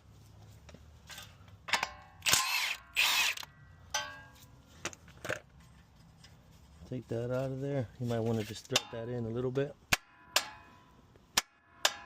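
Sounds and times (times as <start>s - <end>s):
impact wrench spinning: 2.2s - 3.5s.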